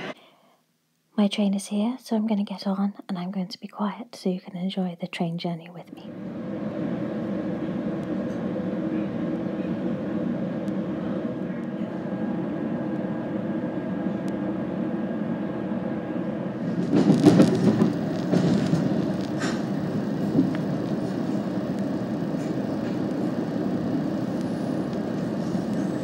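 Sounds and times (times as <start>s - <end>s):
train rumbling inside carriage: 6.0s - 26.0s
rushing clatter: 16.6s - 23.2s.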